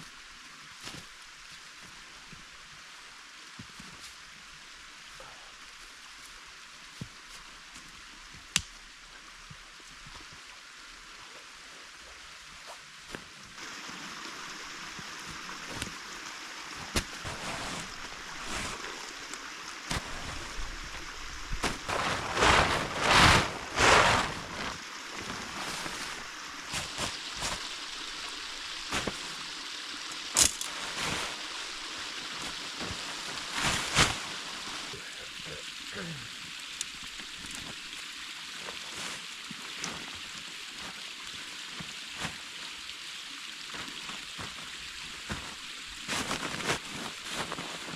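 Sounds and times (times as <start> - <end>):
creek flowing: 0.0 - 47.9
rustling surges: 19.9 - 29.5, 30.3 - 35.0.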